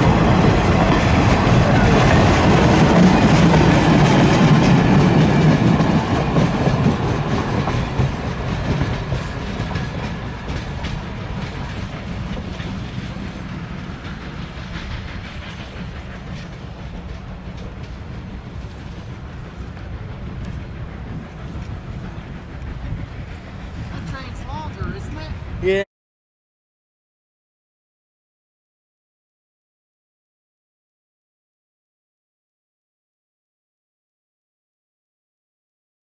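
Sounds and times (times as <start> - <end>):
train wheels clicking over rail joints: 0.0 - 25.7.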